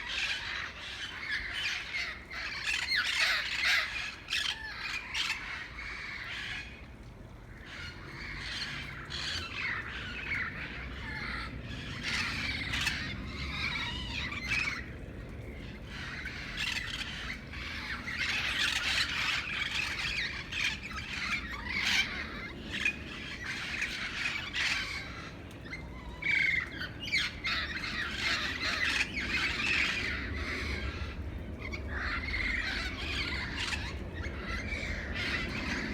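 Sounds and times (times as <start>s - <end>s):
parrots squawking: 16.0s - 25.1s.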